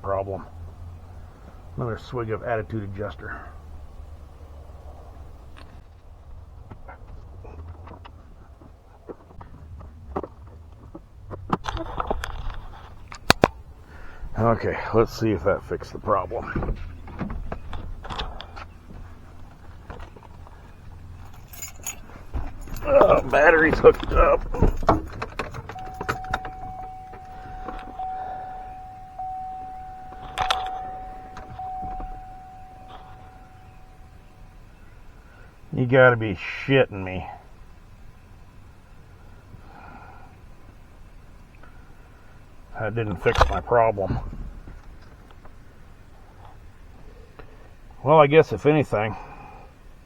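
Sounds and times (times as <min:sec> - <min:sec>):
low steady rumble: 0:00.0 - 0:50.0
light clicks: 0:23.7 - 0:34.6
sharp clunk: 0:24.4 - 0:34.6
electronic warning chime: 0:25.7 - 0:34.6.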